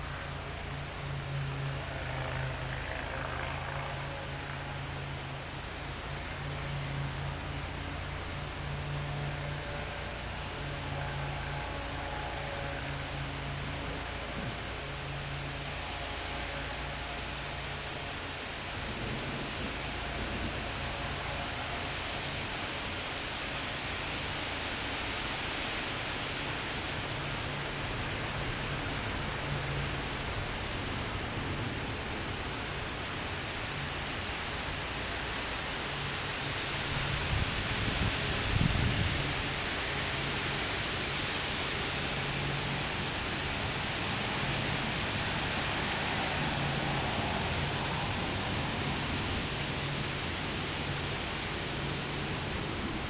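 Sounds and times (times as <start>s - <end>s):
wind and rain hiss: 0.0s - 53.0s
wind buffeting microphone: 26.8s - 53.0s.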